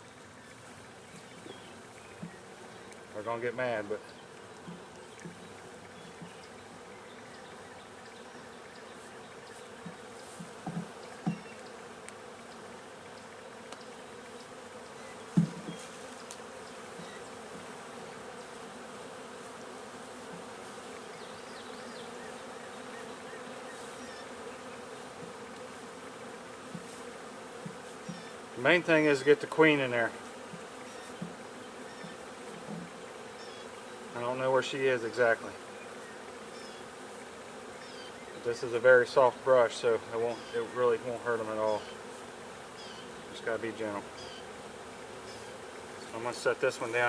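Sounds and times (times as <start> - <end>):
bees buzzing: 0.0 - 47.0
knocks: 10.4 - 11.4, 15.3 - 15.8.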